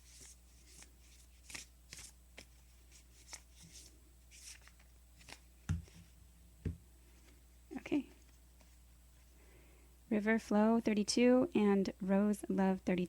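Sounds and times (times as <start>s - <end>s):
cards shuffling: 0.0s - 6.1s
cards thumping on table: 5.2s - 6.8s.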